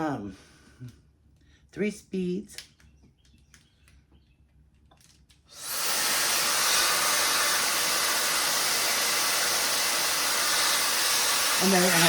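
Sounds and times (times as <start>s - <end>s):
hair dryer brush motor: 5.5s - 12.0s.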